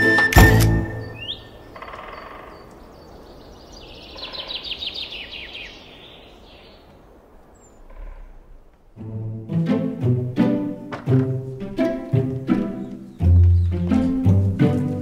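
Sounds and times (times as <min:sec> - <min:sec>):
music cue: 0:00.0 - 0:01.3, 0:09.0 - 0:15.0
faint background hiss: 0:00.1 - 0:15.0
small birds chirping: 0:00.9 - 0:08.7, 0:11.4 - 0:15.0.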